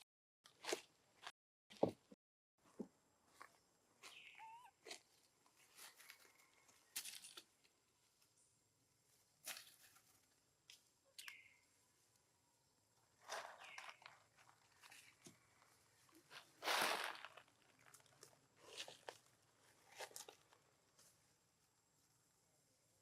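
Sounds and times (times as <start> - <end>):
monkey squeaking: 4.3 - 4.7.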